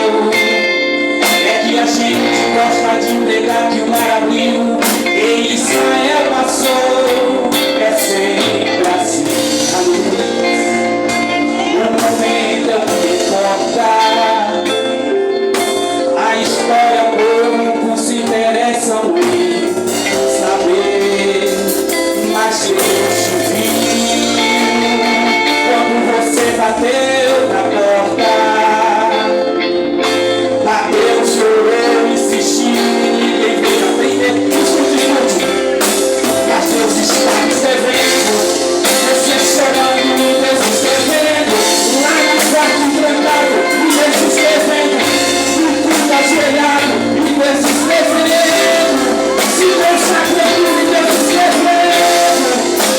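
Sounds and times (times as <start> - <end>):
backing band: 0.0 - 52.9
worship song singing: 0.0 - 52.9.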